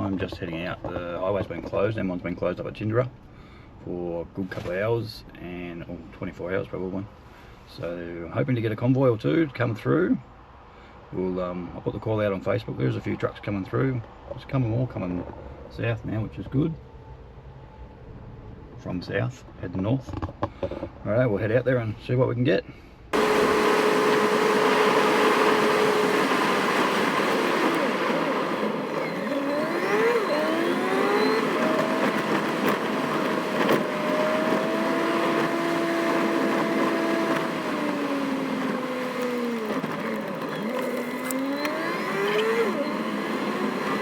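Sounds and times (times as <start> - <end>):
car engine accelerating: 23.2 - 44.0
tyre noise on wet road: 23.2 - 44.0.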